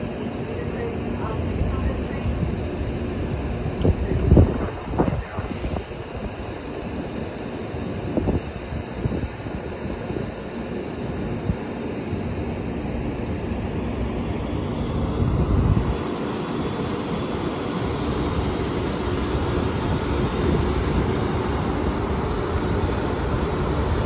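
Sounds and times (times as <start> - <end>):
low rumble: 0.0 - 6.6
train cooling blowers rushing: 0.0 - 24.0.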